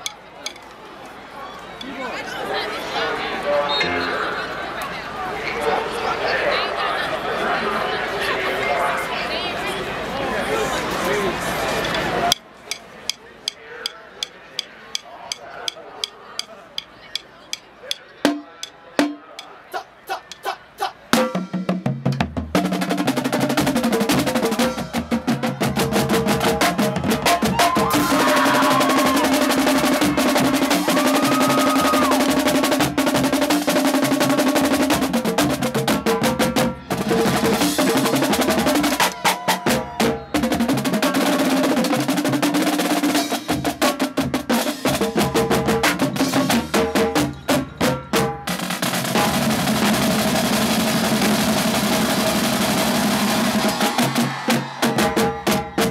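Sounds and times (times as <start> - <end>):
marching drumline playing: 18.2 - 19.5, 20.1 - 55.9.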